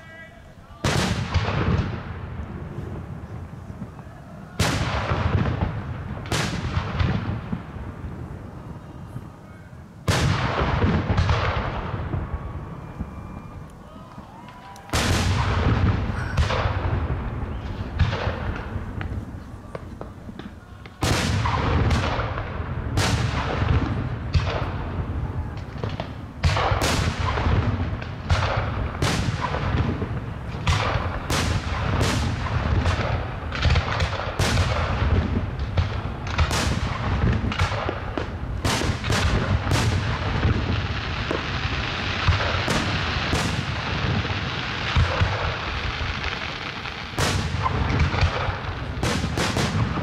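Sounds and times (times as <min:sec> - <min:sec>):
crackling hiss of fireworks: 0:00.0 - 0:50.0
firework shells bursting: 0:25.5 - 0:50.0.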